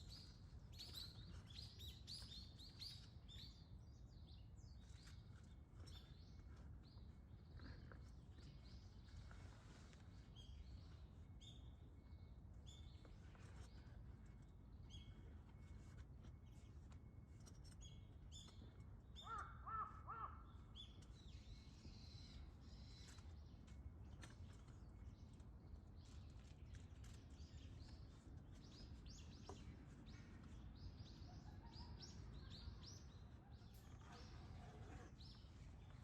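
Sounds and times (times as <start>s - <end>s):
small birds chirping: 0.0s - 36.0s
crow cawing: 19.2s - 20.4s.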